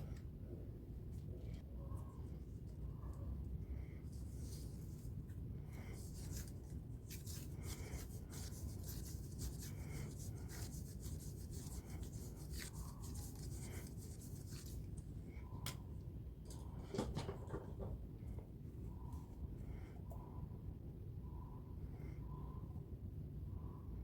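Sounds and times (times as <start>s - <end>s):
low steady hum: 0.0s - 24.0s
rubbing strokes by hand: 4.1s - 15.0s.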